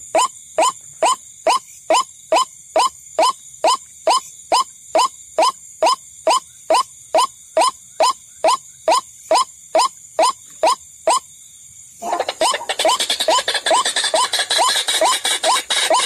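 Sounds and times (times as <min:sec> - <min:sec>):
background noise: 0:00.0 - 0:16.0
waterhen rising croak calls: 0:12.0 - 0:16.0.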